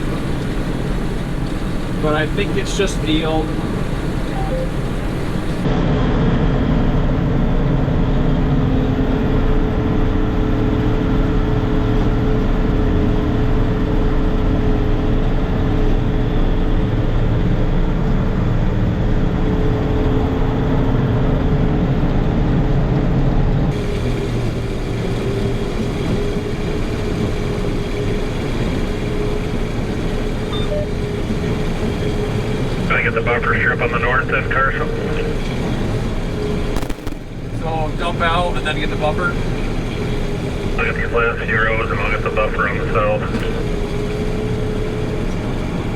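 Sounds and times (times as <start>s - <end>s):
steady machine whine: 0.0s - 5.8s, 23.7s - 45.9s
combine harvester machinery drone: 0.0s - 45.9s.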